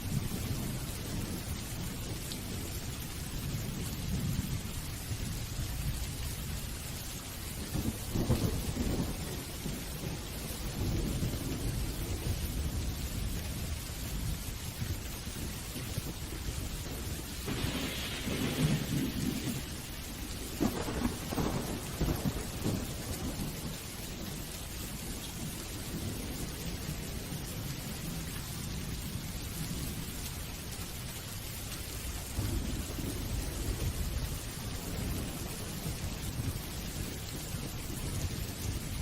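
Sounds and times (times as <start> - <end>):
steady rain: 0.0 - 39.0
rolling thunder: 7.6 - 30.1, 32.2 - 39.0.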